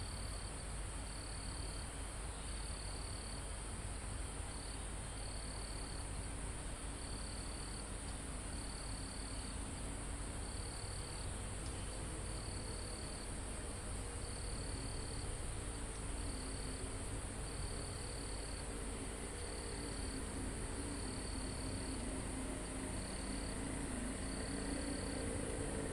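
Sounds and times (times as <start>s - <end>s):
lower insect trill: 0.0s - 25.9s
very high insect trill: 7.0s - 25.9s
low rumble: 16.8s - 25.9s.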